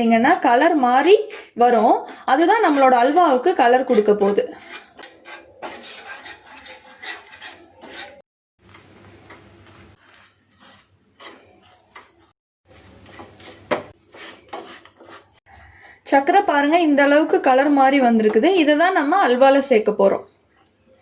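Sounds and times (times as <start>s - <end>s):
spoon scraping and stirring syrup: 0.3s - 8.2s, 9.2s - 15.4s.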